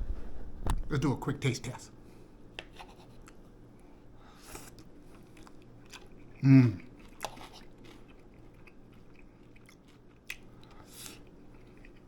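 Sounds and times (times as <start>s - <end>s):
person chewing food: 4.4s - 12.0s.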